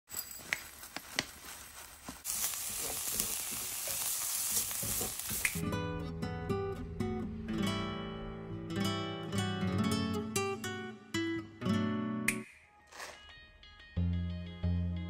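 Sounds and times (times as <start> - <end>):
vegetables sizzling in a pot: 2.1 - 5.6
acoustic guitar music: 5.6 - 12.4.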